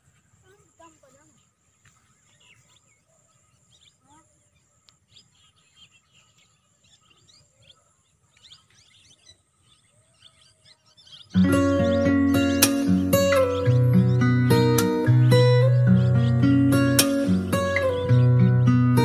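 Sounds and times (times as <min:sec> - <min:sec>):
faint bird chirps: 0:00.0 - 0:19.0.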